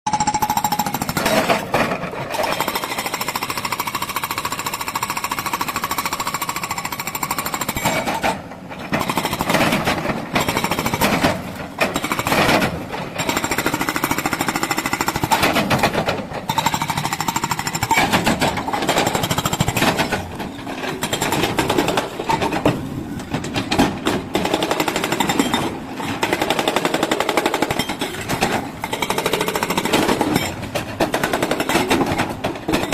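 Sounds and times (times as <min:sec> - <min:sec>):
hydraulic breaker hammering rock: 0:21.0 - 0:32.9.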